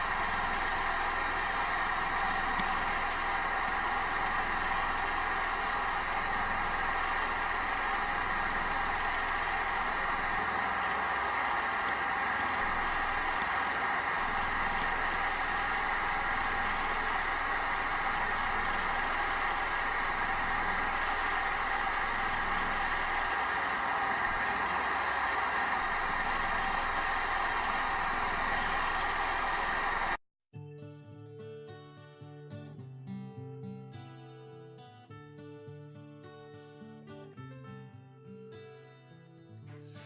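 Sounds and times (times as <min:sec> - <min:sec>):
gas burner rushing: 0:00.0 - 0:30.2
stirling engine running: 0:00.0 - 0:30.2.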